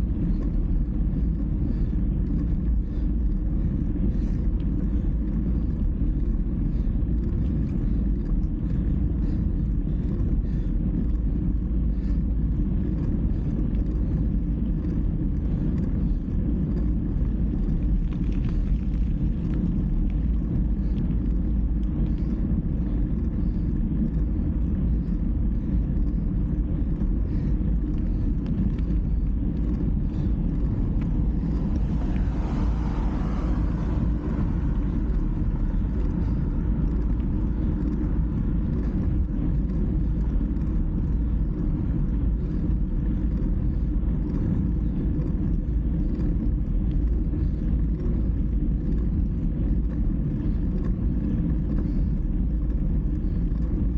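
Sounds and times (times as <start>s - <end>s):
road noise: 0.0s - 53.9s
wind rumble: 0.0s - 53.9s.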